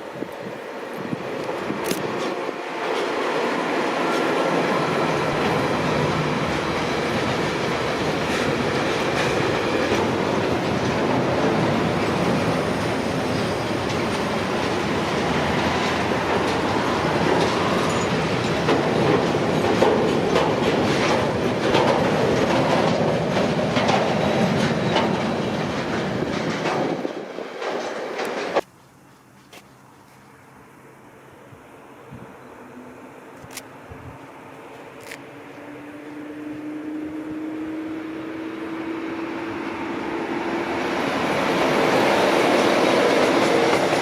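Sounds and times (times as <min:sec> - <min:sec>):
freight train wheels clicking: 0:00.2 - 0:29.8, 0:39.4 - 0:44.0.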